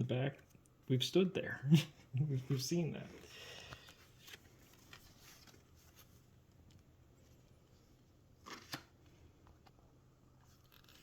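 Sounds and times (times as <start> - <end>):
paper postcards rustling: 2.4 - 11.0.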